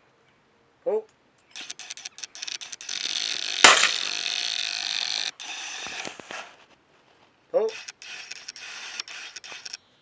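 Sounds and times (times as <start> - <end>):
loud shotgun shot: 3.7 - 4.2.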